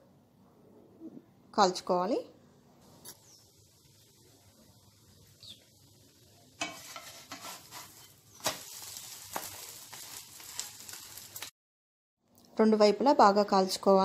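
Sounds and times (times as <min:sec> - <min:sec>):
food sizzling in oil: 0:02.8 - 0:11.6
wooden spatula knocks and scrapes: 0:06.6 - 0:08.6.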